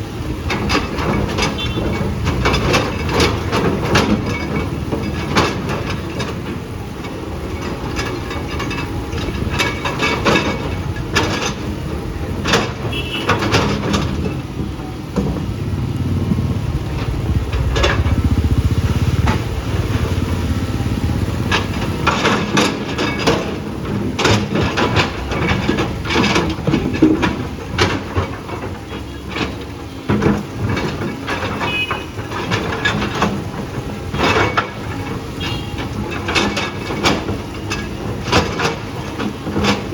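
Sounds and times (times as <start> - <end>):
metal clanks and knocks: 0.2 - 39.9
earthmoving machine engine: 13.5 - 28.2.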